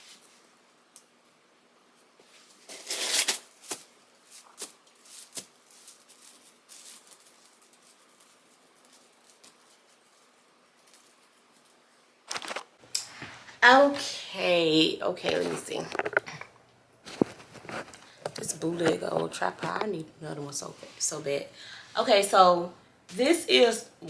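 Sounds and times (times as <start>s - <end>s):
artificial grass rustling: 2.1s - 12.2s.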